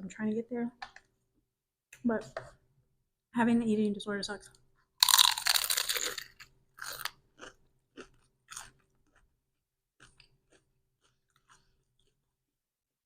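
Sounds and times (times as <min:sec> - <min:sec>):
person chewing crunchy food: 0:05.0 - 0:09.4, 0:10.0 - 0:12.4.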